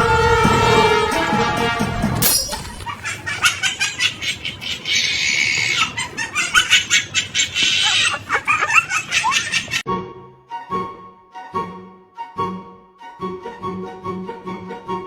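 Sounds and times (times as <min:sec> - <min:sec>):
birds chirping and squawking: 0:02.2 - 0:09.8.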